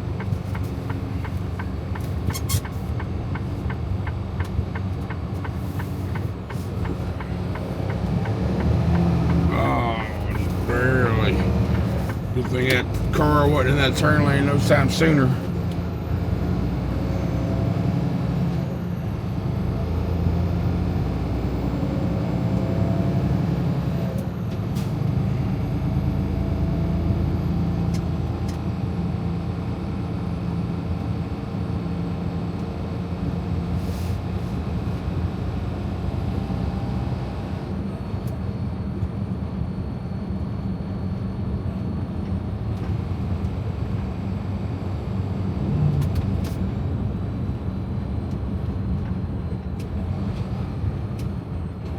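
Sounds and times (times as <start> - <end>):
truck engine and road rumble: 0.0 - 51.9.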